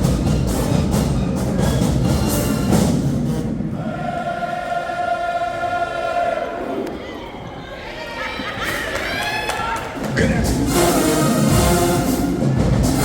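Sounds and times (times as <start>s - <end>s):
marching band drums and horns: 0.0s - 4.2s, 10.1s - 13.0s.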